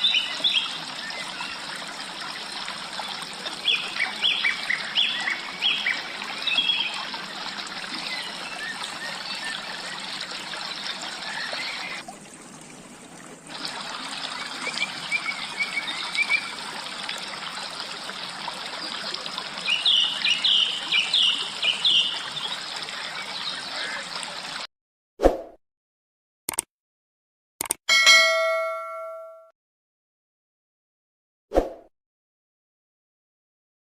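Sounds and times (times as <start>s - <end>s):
stream over rocks: 0.0s - 24.7s
small birds chirping: 19.6s - 24.0s.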